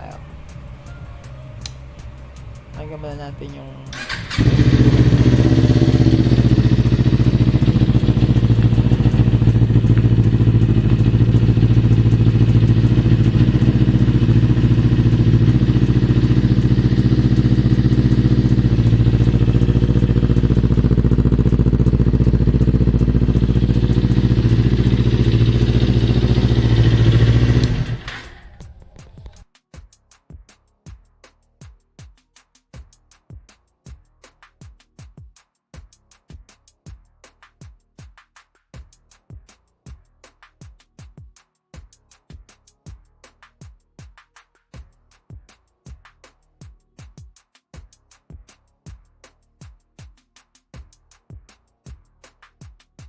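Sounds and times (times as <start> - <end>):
motorcycle engine idling: 0.0 - 29.4.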